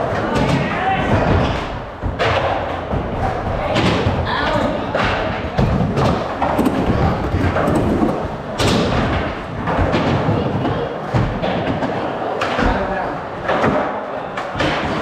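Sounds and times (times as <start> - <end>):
skateboards rolling: 0.0 - 15.0
skateboards thudding and clacking: 0.0 - 15.0.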